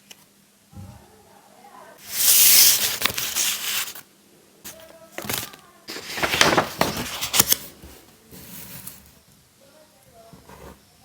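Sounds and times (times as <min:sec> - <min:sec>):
paper rustling and crinkling: 0:02.0 - 0:04.0, 0:04.7 - 0:09.1.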